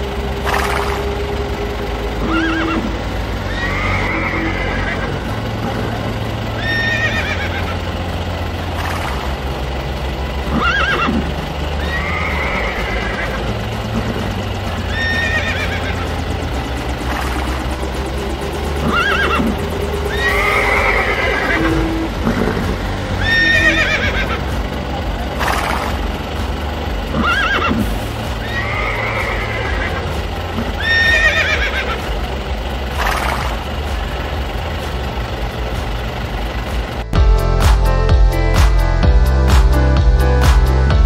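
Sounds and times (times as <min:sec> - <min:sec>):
background music: 0:00.0 - 0:41.0
steady low hum: 0:00.0 - 0:41.0
horse whinnying: 0:02.2 - 0:02.9, 0:03.5 - 0:05.2, 0:06.6 - 0:07.7, 0:10.5 - 0:11.2, 0:11.8 - 0:13.4, 0:14.9 - 0:16.0, 0:18.8 - 0:22.6, 0:23.2 - 0:24.4, 0:27.2 - 0:30.0, 0:30.8 - 0:32.0.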